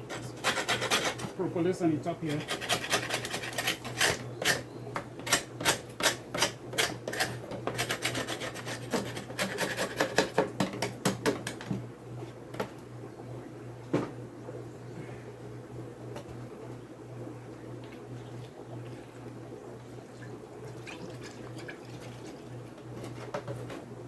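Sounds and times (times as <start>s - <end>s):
scraping wooden hive frames: 0.0s - 10.4s.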